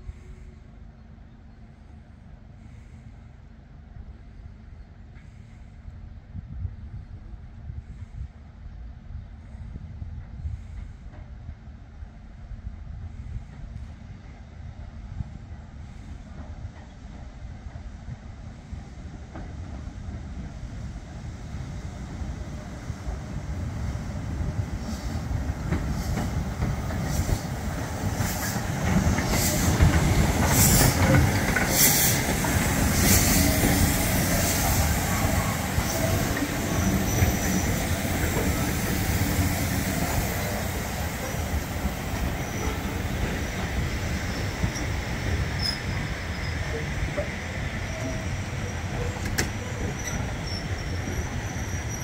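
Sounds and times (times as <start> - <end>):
train running: 0.0 - 52.0.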